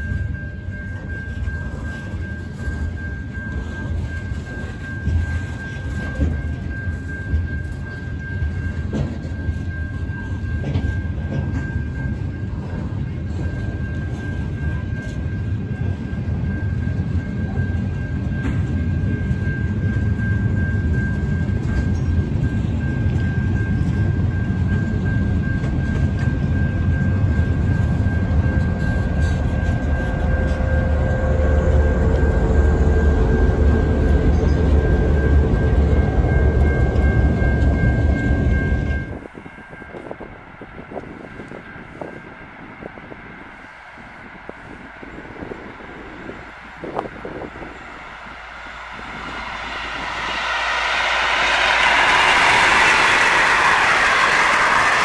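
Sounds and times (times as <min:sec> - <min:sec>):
diesel locomotive engine hum: 0:00.0 - 0:55.0
train wheel clatter: 0:00.0 - 0:55.0
hopper wagons rumbling past: 0:46.1 - 0:55.0.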